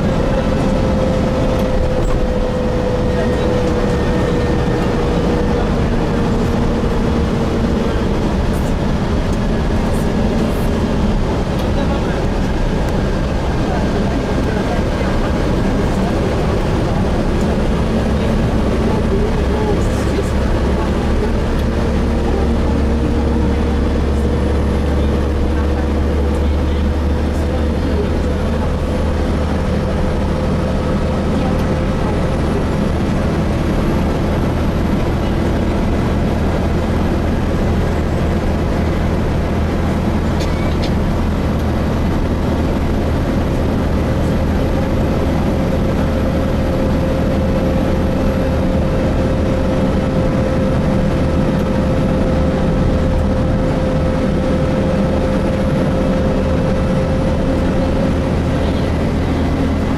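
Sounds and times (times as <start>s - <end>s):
bus engine and road rumble: 0.0s - 59.9s
transmission whine: 0.0s - 59.9s.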